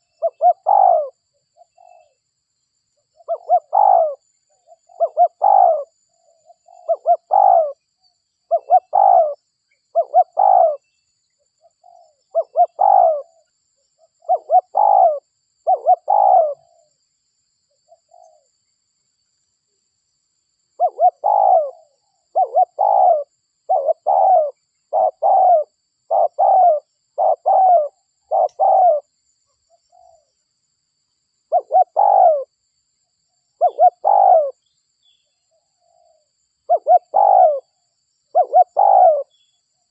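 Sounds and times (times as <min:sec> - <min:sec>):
dove cooing: 0:00.0 - 0:02.2, 0:03.2 - 0:07.8, 0:08.5 - 0:10.9, 0:11.7 - 0:13.4, 0:14.0 - 0:16.9, 0:20.8 - 0:29.1, 0:31.5 - 0:32.5, 0:33.6 - 0:34.6, 0:35.8 - 0:39.5.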